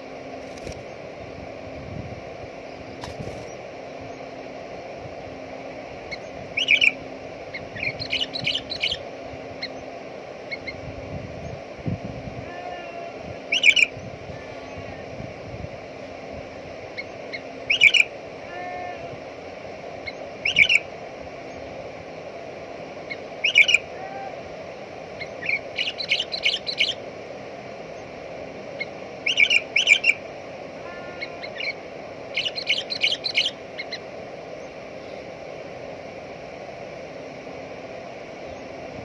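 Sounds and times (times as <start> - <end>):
low background hum: 0.0 - 39.0
bird calling: 6.0 - 10.9, 12.4 - 15.1, 16.9 - 19.2, 19.9 - 21.7, 23.0 - 24.5, 25.1 - 27.1, 27.8 - 35.3.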